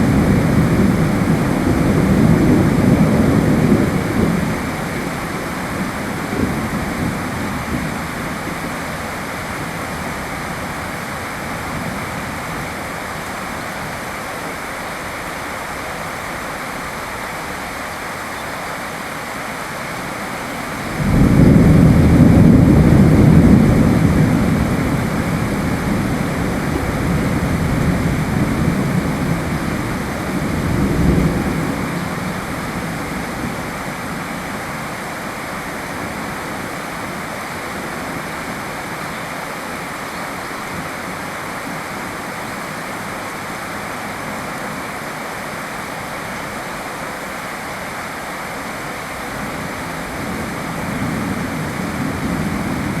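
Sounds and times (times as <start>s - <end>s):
thunder rumbling: 0.0s - 14.0s, 20.0s - 38.8s, 49.1s - 53.0s
steady rain falling: 0.0s - 53.0s.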